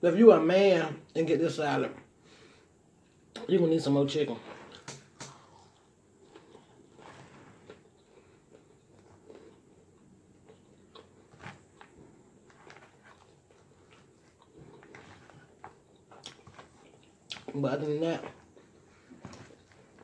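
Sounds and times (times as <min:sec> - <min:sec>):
person chewing salad: 0:04.4 - 0:17.6, 0:18.2 - 0:20.0.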